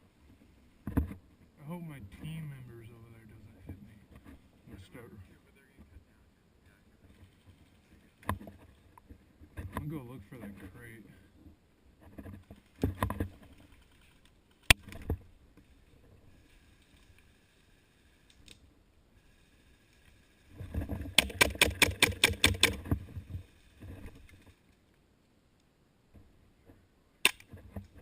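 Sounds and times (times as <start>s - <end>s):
rustling movement: 0.1s - 21.4s.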